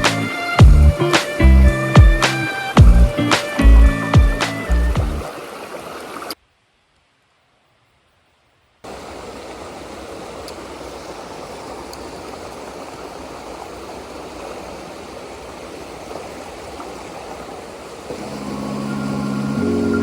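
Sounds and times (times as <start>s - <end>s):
background music: 0.0s - 5.3s, 18.2s - 20.0s
stream water rushing: 0.0s - 6.4s, 8.8s - 20.0s.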